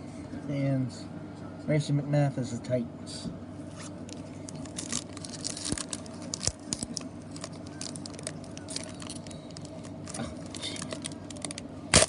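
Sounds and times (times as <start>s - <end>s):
cards and packaging rustling: 3.8s - 11.7s.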